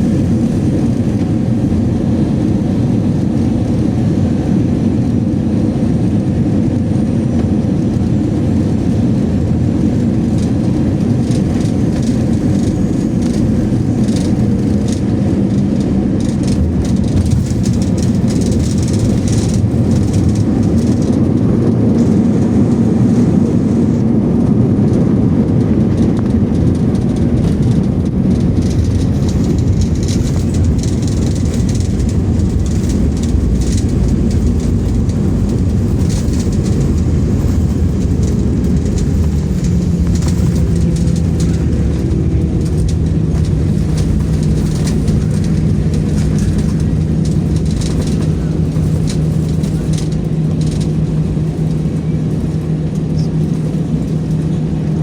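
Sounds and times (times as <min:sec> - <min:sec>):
jet engines rumbling: 0:00.0 - 0:55.0
light cabin rattles: 0:00.0 - 0:55.0.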